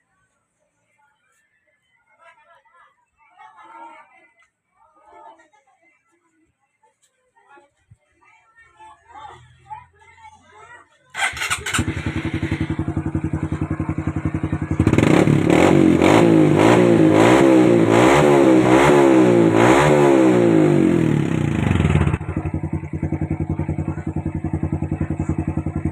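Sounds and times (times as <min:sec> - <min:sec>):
motorcycle engine idling and revving: 0:11.2 - 0:25.9.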